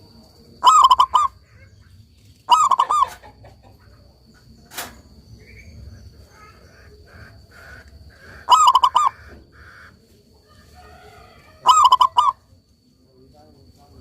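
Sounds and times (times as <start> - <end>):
dove cooing: 0.6 - 1.4, 2.5 - 3.4, 6.5 - 9.9, 11.6 - 12.4
sharp click: 4.7 - 5.0.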